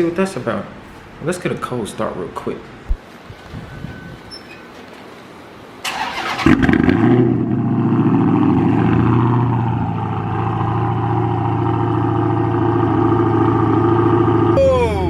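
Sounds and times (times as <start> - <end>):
engine cranking and starting: 5.8 - 7.0
engine rumbling high idle: 6.4 - 14.6.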